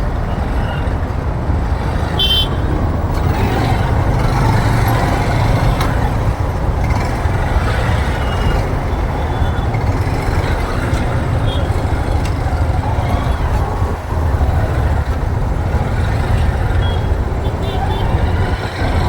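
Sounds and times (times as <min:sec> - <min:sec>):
motorbike road rumble: 0:00.0 - 0:19.0
wind buffeting: 0:00.0 - 0:19.0
vehicle horn beep: 0:02.1 - 0:02.8, 0:16.8 - 0:18.2.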